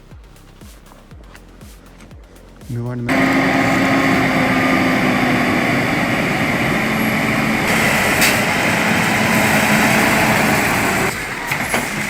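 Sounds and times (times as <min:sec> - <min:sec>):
chainsaw engine running: 0:03.0 - 0:11.2.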